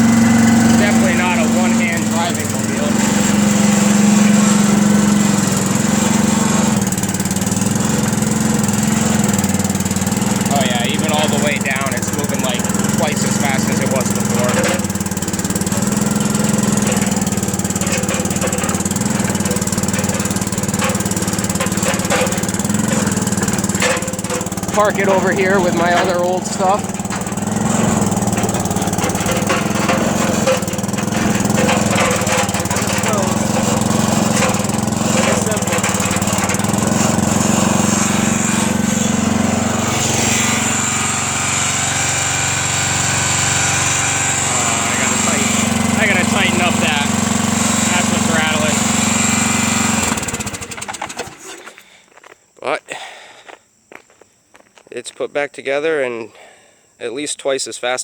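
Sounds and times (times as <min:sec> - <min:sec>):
loose part rattling: 0:00.0 - 0:41.4
small gasoline engine running: 0:00.0 - 0:51.8.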